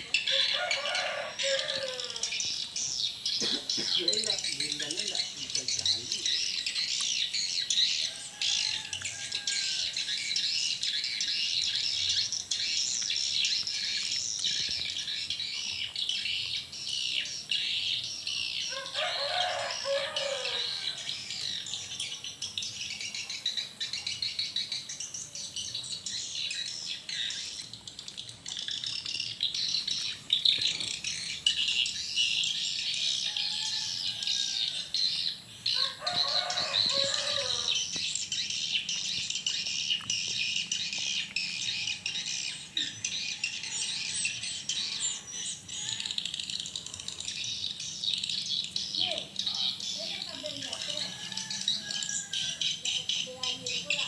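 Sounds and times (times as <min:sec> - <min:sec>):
lower chattering bird call: 0:00.0 - 0:54.0.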